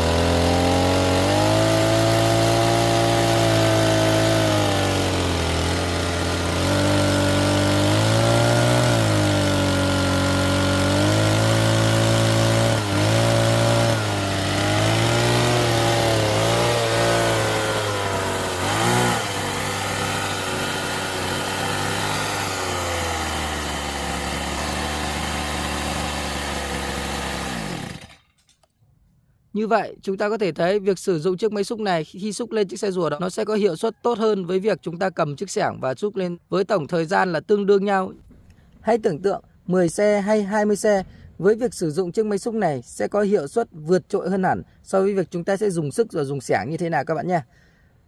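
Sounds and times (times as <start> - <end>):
toy excavator motor running: 0.0 - 28.3.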